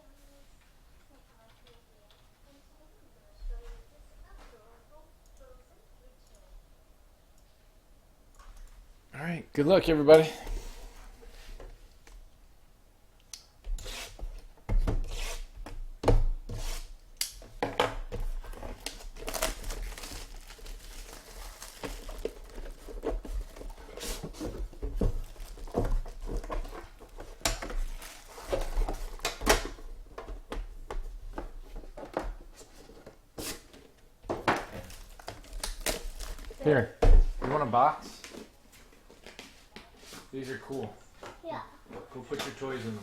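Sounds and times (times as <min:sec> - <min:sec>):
plastic wrap tearing: 0:18.8 - 0:24.2, 0:34.7 - 0:36.7.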